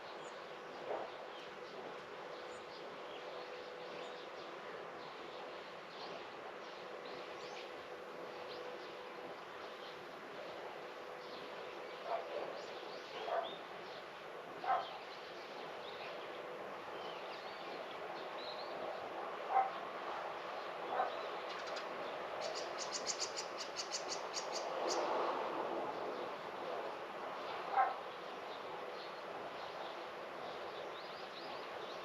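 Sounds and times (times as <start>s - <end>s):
dog barking: 13.2s - 13.6s, 14.6s - 14.9s, 19.5s - 19.8s, 27.7s - 28.0s.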